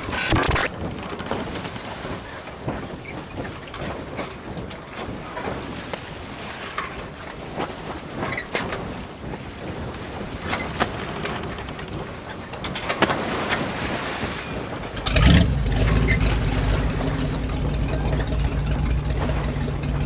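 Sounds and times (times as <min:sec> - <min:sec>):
scattered clicks: 0:00.0 - 0:00.7
wind noise: 0:00.0 - 0:20.0
boat engine running: 0:14.6 - 0:20.0.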